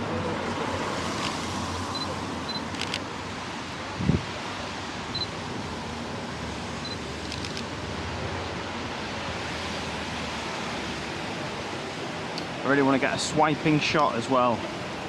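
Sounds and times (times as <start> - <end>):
camera focus beep: 1.2 - 3.0, 6.8 - 7.6
camera shutter clicks: 2.6 - 3.1, 7.2 - 7.7.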